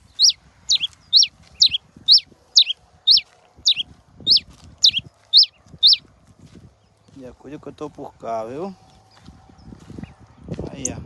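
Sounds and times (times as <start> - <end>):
finch singing sharp whistles: 0.0 - 6.0.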